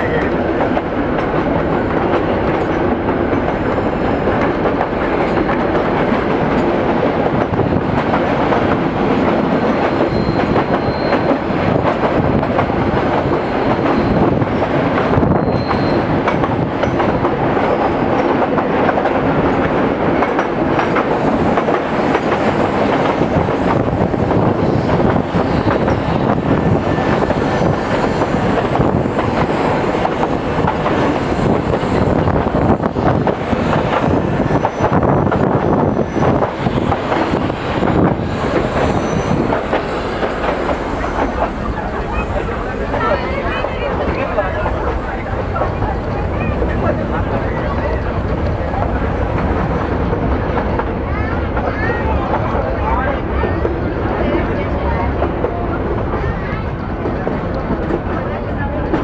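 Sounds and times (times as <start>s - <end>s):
train wheels on rails: 0.0s - 59.0s
rushing air: 20.6s - 50.5s.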